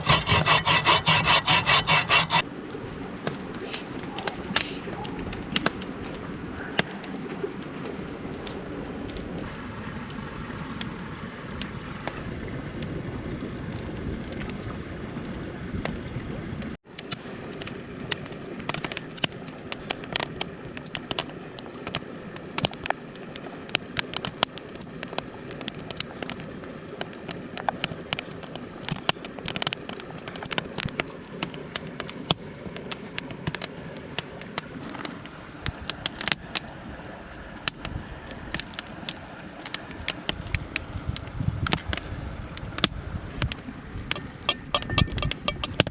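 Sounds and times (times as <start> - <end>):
fire crackling and popping: 3.3 - 9.6, 17.0 - 36.8, 37.5 - 45.9.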